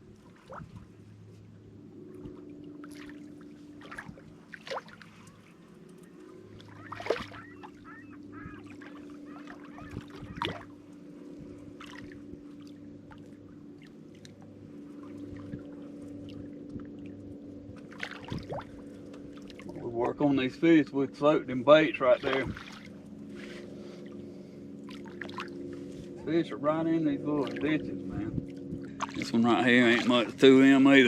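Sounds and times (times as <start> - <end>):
electric trolling motor humming: 0.0 - 31.0
wavering call-like sound: 6.6 - 10.6.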